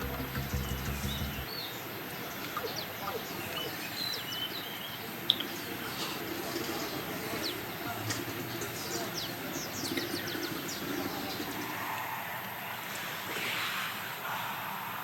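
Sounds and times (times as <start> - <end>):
small birds chirping: 0.0 - 11.7.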